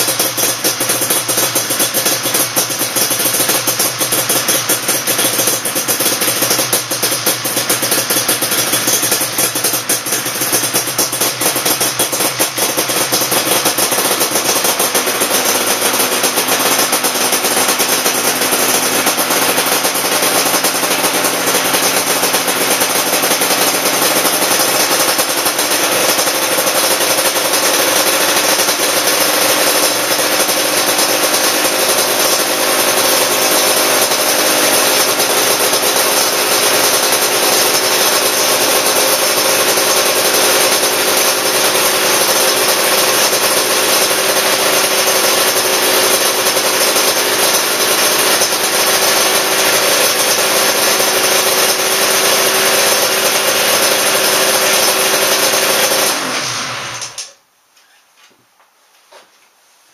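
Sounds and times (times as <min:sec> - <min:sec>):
motorcycle engine idling: 0:00.0 - 0:56.4.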